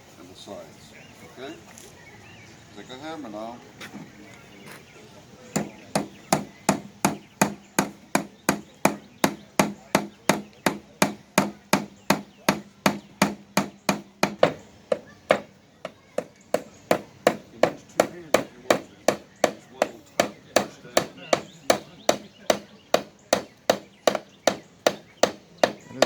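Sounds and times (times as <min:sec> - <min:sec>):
hammer driving nails into wood: 0:05.6 - 0:26.0.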